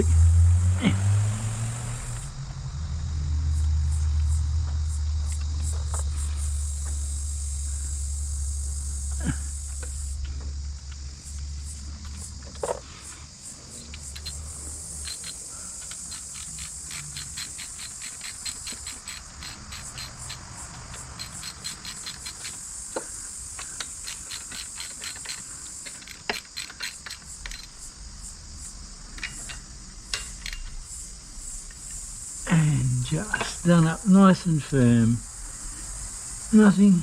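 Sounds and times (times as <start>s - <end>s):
high hiss: 0.0s - 37.0s
socket ratchet clicking: 13.8s - 27.9s.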